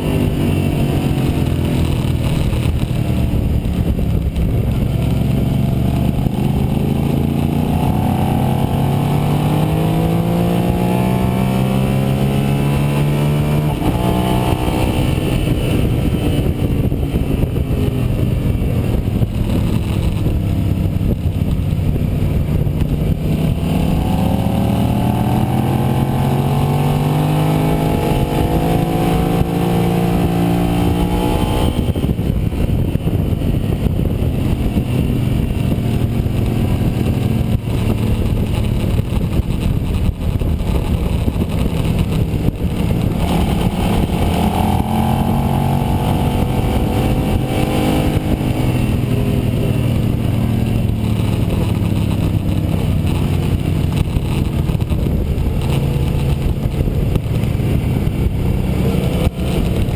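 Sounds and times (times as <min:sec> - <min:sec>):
motorcycle engine revving: 0:00.0 - 0:59.9
wind rushing over microphone: 0:00.0 - 0:59.9.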